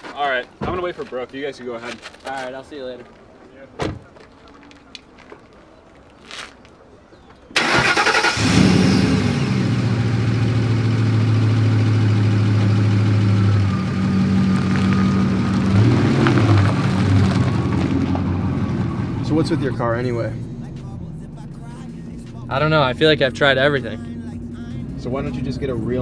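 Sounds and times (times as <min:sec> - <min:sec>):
engine starting and idling: 0:07.6 - 0:13.8.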